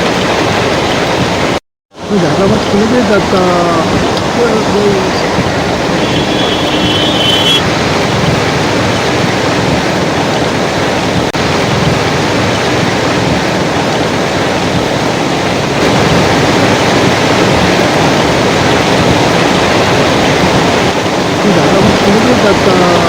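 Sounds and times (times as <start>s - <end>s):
floodwater rushing: 0.0s - 23.0s
short high tone: 5.9s - 7.6s.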